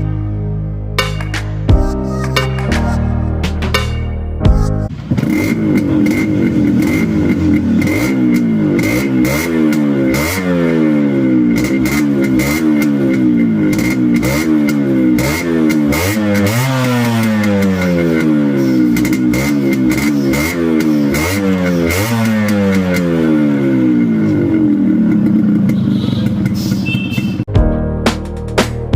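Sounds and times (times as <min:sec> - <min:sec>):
motorcycle engine revving: 0:04.9 - 0:27.5.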